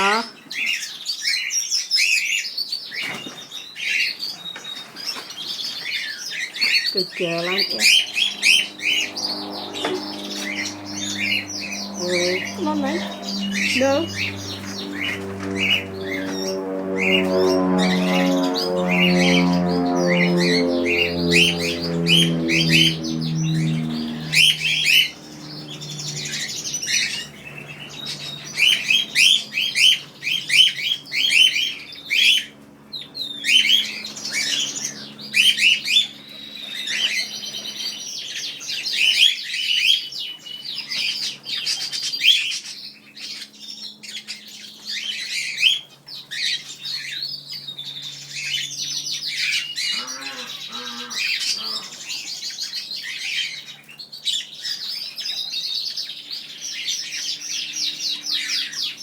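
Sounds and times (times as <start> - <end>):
small birds chirping and trilling: 0.0 - 59.0
low pulsing tone: 7.0 - 31.2.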